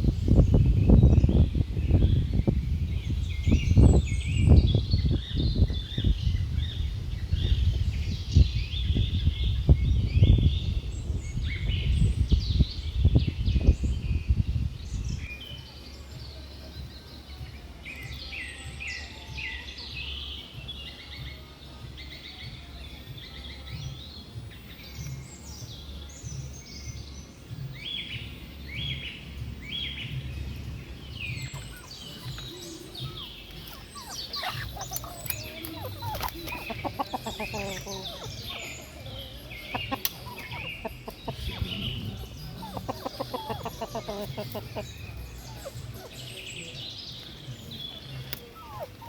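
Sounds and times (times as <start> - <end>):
small birds chirping: 0.0 - 49.0
low rumble: 40.8 - 43.6.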